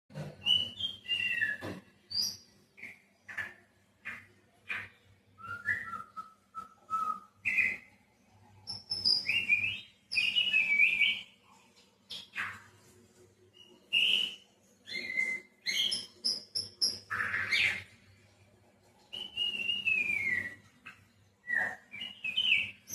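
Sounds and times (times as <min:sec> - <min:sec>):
bird singing whistled phrases: 0:00.4 - 0:03.0, 0:04.1 - 0:07.9, 0:08.7 - 0:11.3, 0:13.6 - 0:17.9, 0:19.1 - 0:20.7, 0:21.4 - 0:22.9.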